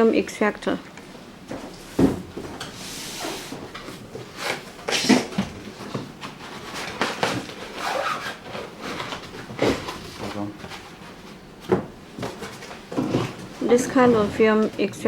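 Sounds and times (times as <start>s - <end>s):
objects knocking and clattering: 3.6s - 7.6s, 11.6s - 14.9s.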